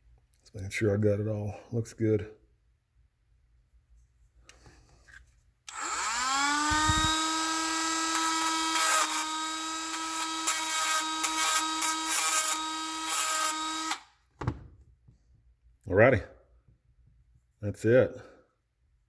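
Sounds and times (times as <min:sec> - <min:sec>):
rotary tool high whine: 0:05.7 - 0:14.1
stone grinding: 0:07.1 - 0:13.6.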